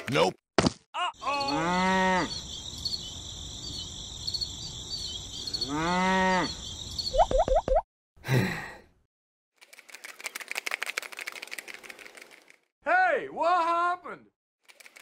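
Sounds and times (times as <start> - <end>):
crickets chirping: 1.2 - 7.6
cow mooing: 1.3 - 2.4, 5.6 - 6.6.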